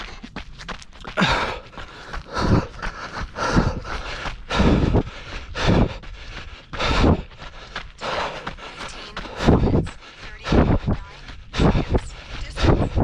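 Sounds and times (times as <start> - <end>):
footfalls: 0.0 - 13.0
heavy breathing: 0.0 - 13.0.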